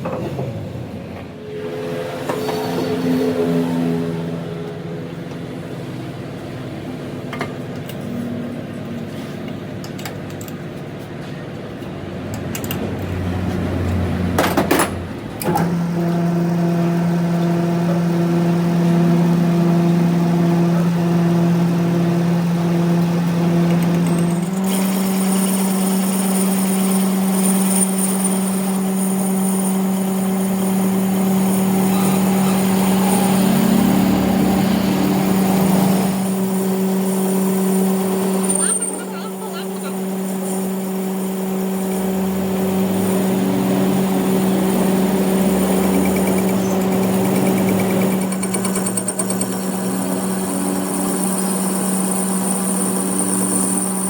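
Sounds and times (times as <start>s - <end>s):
strong steady drone: 1.3s - 7.3s, 29.8s - 46.6s
machine humming: 1.3s - 7.4s, 15.0s - 54.0s.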